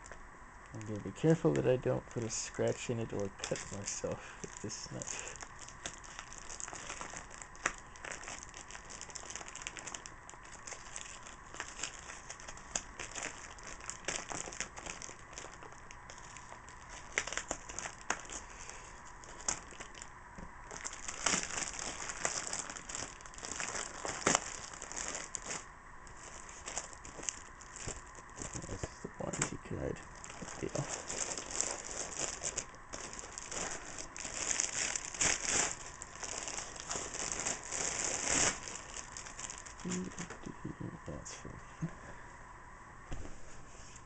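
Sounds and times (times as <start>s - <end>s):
packaging crinkling and rustling: 0.0s - 40.4s.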